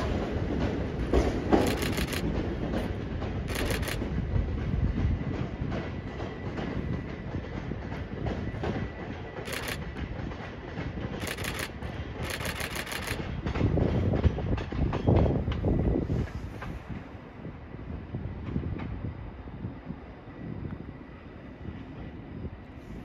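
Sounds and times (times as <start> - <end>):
train wheels clicking over joints: 0.0 - 17.3
train rumble: 0.0 - 23.0.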